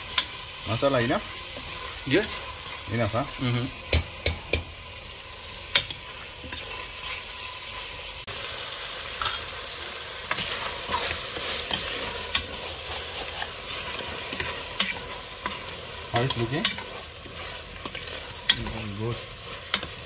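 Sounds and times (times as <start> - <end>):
food sizzling in a pot: 0.0 - 20.0
metal spoon scraping a pot: 5.7 - 7.3, 10.2 - 20.0.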